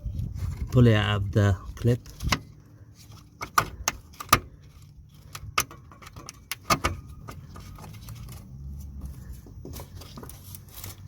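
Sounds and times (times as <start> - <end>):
sharp metallic clicks and knocks: 5.2 - 8.4.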